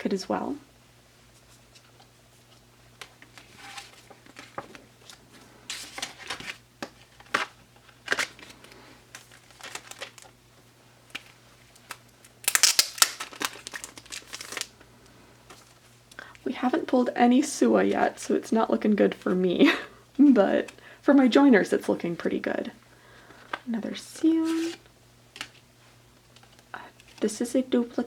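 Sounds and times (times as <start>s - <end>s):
packaging crinkling and rustling: 1.4s - 10.4s, 11.0s - 14.8s.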